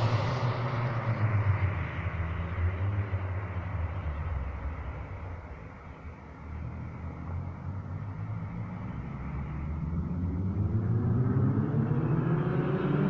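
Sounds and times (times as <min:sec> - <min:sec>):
car engine revving: 0:00.0 - 0:03.6.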